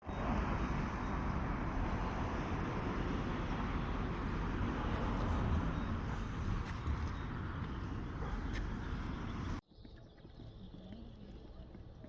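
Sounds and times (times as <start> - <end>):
distant traffic rumble: 0.0 - 9.6.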